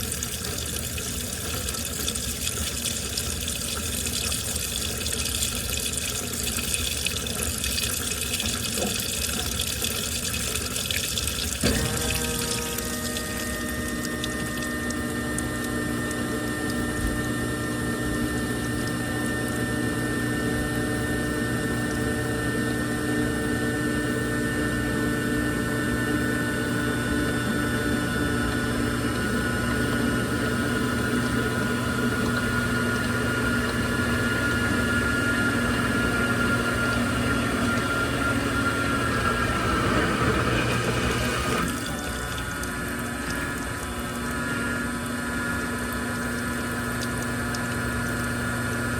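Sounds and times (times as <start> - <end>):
water flowing: 0.0 - 20.9, 30.3 - 48.9
steady hum: 0.0 - 48.9
washing machine running: 0.0 - 48.9.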